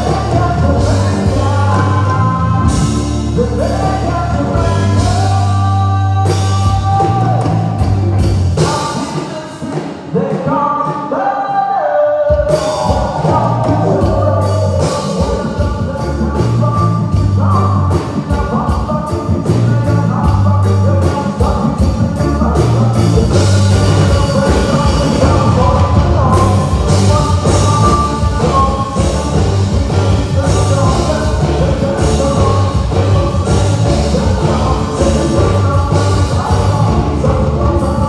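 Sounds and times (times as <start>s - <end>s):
lead melody line: 0.0s - 8.7s, 22.0s - 38.0s
bass guitar: 0.0s - 9.0s, 12.5s - 38.0s
drums with hi-hat: 0.0s - 11.2s, 12.3s - 38.0s.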